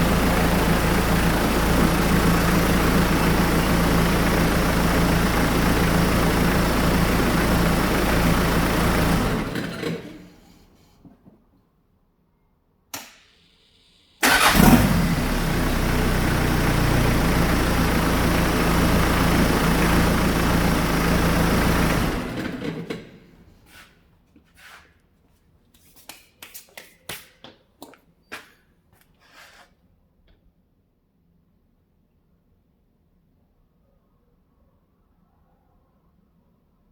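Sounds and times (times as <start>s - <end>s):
diesel engine running: 0.0s - 10.3s, 14.2s - 23.2s
single click: 12.9s - 13.3s.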